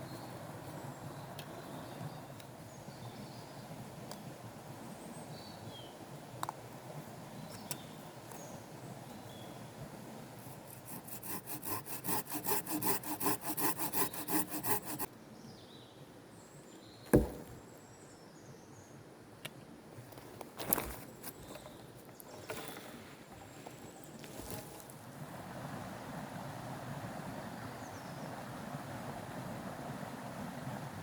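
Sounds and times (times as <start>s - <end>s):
hand saw cutting wood: 10.5s - 15.1s
sharp knock: 17.1s - 17.5s.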